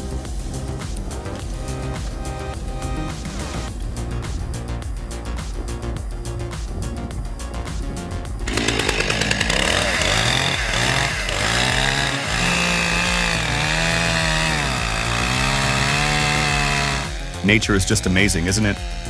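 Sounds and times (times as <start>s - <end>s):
background music: 0.0s - 19.0s
chainsaw cutting wood: 8.4s - 19.0s.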